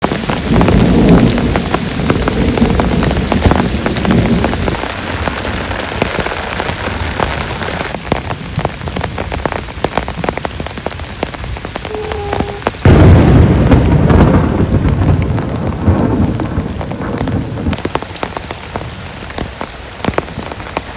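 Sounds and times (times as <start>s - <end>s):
heavy rain falling: 0.0s - 20.9s
loud low thunder rumble: 0.1s - 4.8s, 11.8s - 18.0s.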